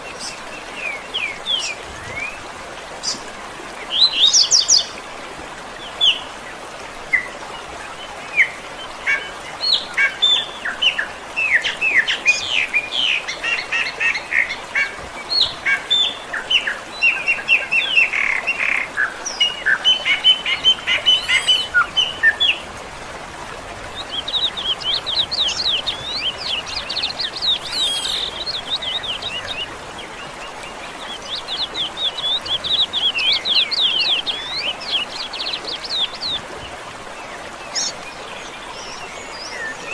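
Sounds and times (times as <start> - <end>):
songbirds chirping and singing: 8.0 - 22.8, 23.4 - 36.6.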